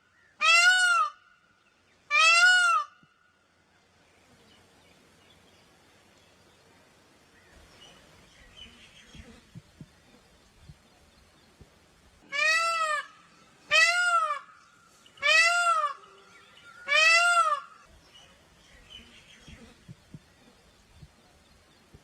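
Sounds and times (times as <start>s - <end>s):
peafowl wailing calls: 0.4s - 1.2s, 2.1s - 3.0s, 12.3s - 14.6s, 15.2s - 17.9s.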